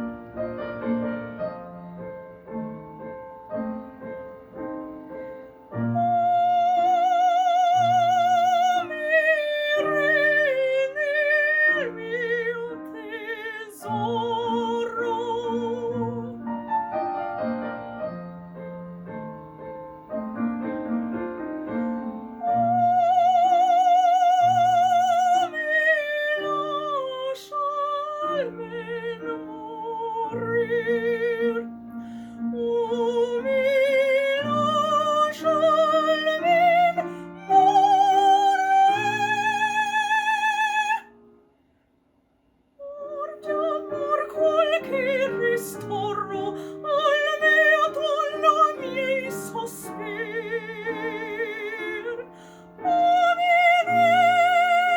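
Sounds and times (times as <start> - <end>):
piano accompaniment: 0.0 - 41.6, 42.8 - 54.9
operatic singing voice: 6.0 - 16.5, 42.8 - 54.9.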